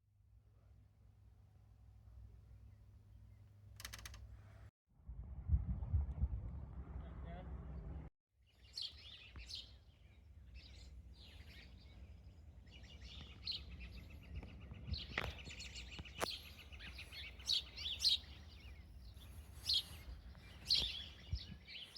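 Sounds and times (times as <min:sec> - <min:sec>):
low steady rumble: 0:04.4 - 0:08.1
small birds chirping: 0:08.5 - 0:21.9.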